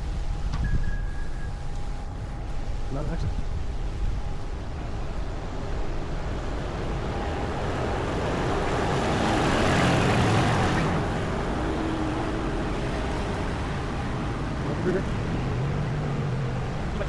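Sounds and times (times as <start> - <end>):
road vehicle passing: 4.9 - 17.0.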